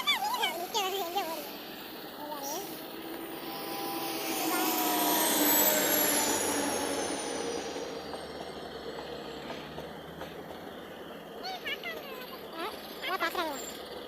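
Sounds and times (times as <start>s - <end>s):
diesel locomotive passing: 0.0s - 14.0s
high whine falling in pitch: 2.7s - 9.5s.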